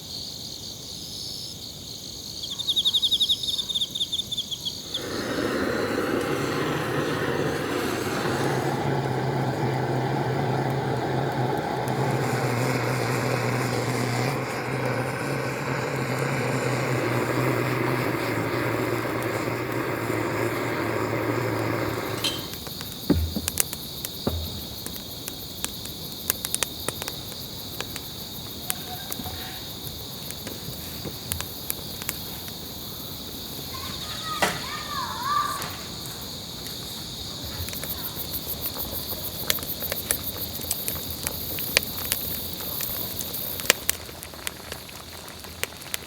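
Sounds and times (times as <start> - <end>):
insects chirring: 0.0 - 46.0
low knocks: 22.2 - 25.1.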